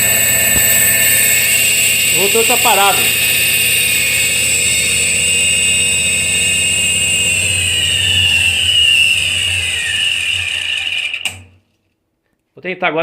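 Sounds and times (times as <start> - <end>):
alternator high-pitched whine: 0.0 - 11.6.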